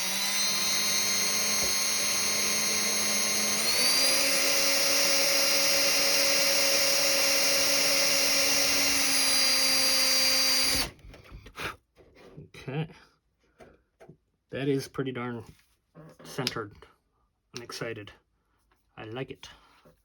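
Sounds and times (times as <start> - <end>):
small electric drill whine: 0.0 - 11.0.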